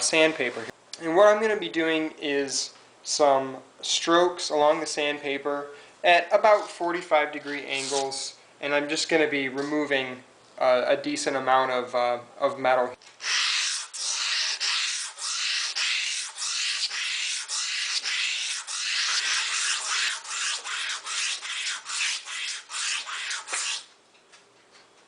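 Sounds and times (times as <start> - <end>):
razor blade scraping on sandpaper: 7.5 - 8.2, 13.2 - 23.9.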